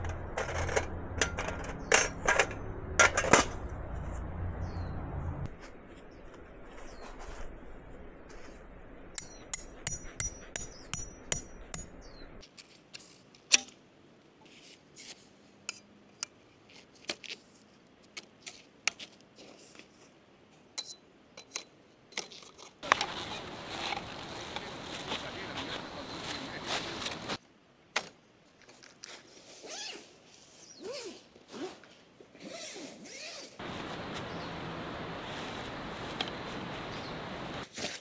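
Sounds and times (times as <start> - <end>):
ringing metallic clinks: 0.0 - 3.7, 9.2 - 12.2.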